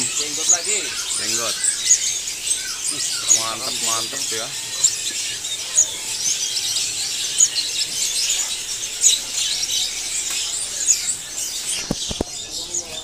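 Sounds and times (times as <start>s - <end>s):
songbirds chirping and twittering: 0.0s - 13.0s.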